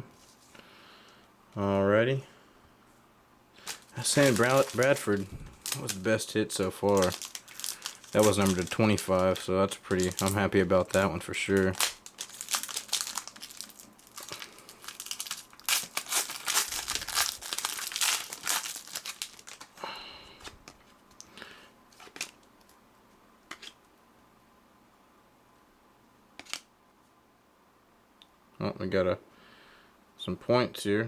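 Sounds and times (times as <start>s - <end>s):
wrapper tearing and crinkling: 3.6s - 19.8s
cards clicking and tapping: 26.4s - 26.6s.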